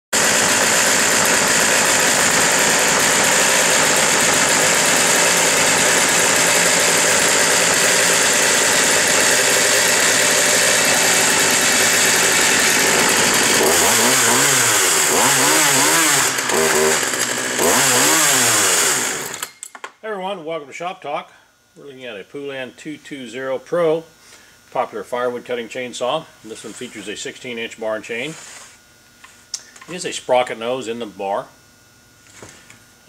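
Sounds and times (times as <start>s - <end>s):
chainsaw running and revving: 0.2s - 19.5s.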